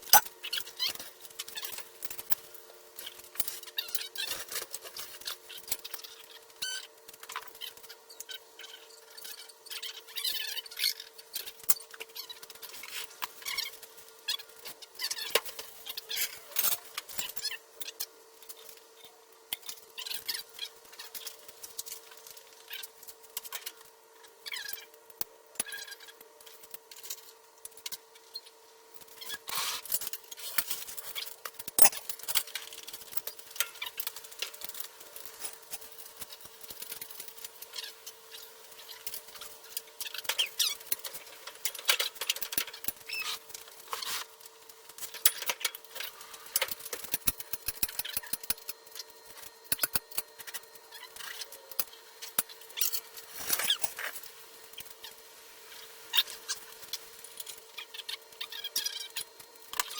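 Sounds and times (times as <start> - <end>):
hand tools clicking and clinking: 30.0 - 37.6.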